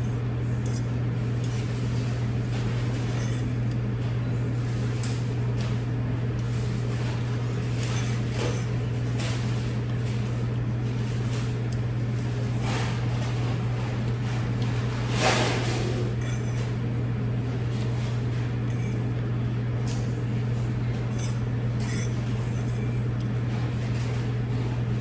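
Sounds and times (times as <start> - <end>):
steady low hum: 0.0 - 25.0
eating and handling containers: 0.7 - 16.8.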